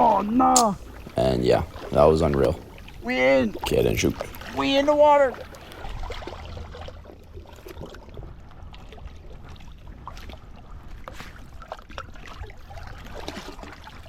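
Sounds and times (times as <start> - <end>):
water sloshing and splashing: 0.0 - 14.0.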